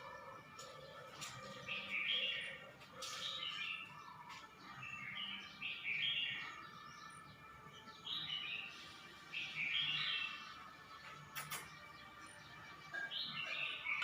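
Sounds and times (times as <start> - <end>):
bulbul singing warbled phrases: 0.0 - 7.1, 7.9 - 10.6.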